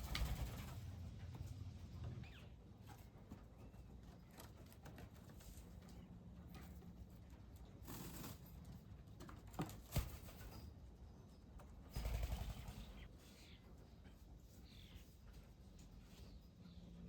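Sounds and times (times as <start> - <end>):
faint bird chirps: 2.2 - 2.6, 11.9 - 15.2.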